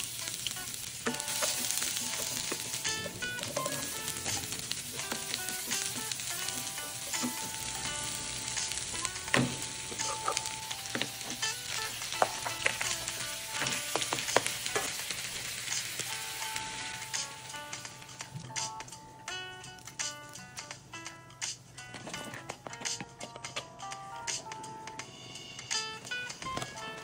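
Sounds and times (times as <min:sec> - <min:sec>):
garlic and onion sizzling in oil: 0:00.0 - 0:20.6.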